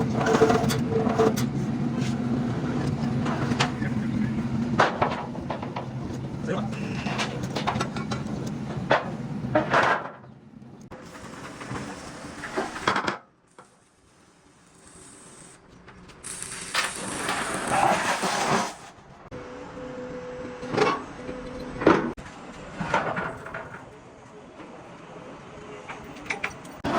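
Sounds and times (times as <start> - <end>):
repair shop noise: 10.9 - 19.4.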